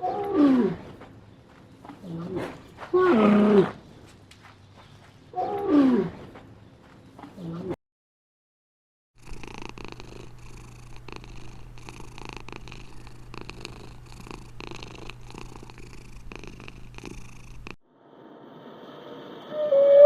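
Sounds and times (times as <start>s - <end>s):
cat purring: 9.2s - 17.8s.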